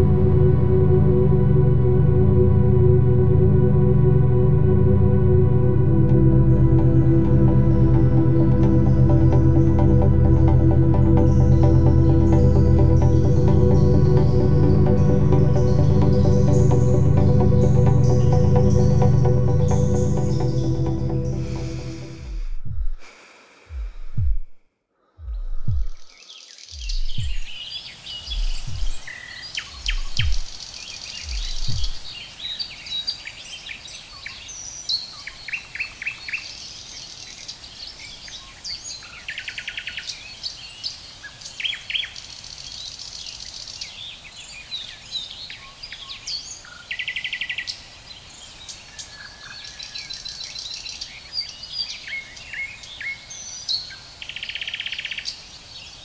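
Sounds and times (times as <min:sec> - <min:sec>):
low thuds: 0:22.2 - 0:23.1, 0:23.7 - 0:24.6, 0:25.2 - 0:26.1, 0:26.8 - 0:27.6
small birds chirping: 0:25.1 - 0:56.0.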